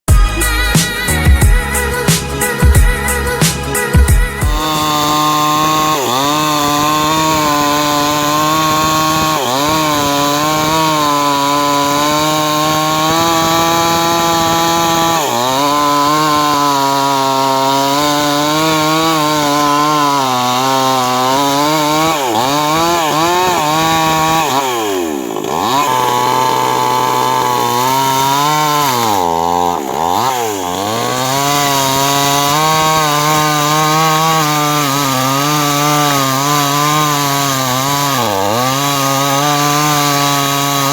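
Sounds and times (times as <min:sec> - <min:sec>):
chainsaw cutting through timber: 0:00.1 - 0:40.9.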